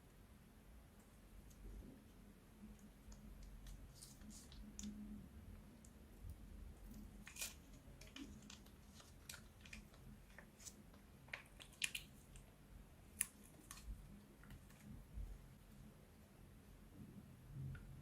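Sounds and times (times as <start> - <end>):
slime clicks and crackles: 7.2 - 12.5.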